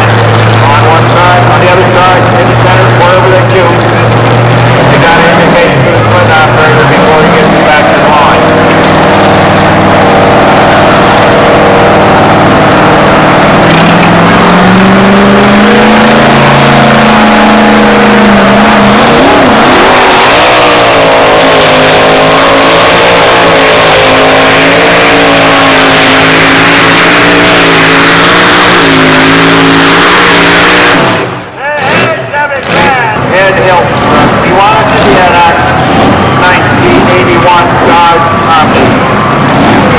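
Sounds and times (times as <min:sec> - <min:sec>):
truck engine at full throttle: 0:00.0 - 0:39.9.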